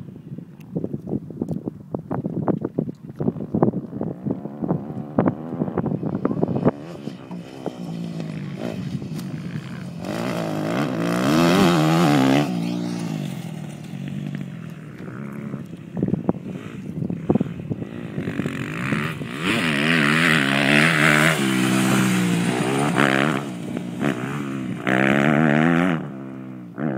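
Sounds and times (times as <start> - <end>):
sharp engine crackles: 3.0 - 26.2
dirt bike engines revving: 3.8 - 26.9.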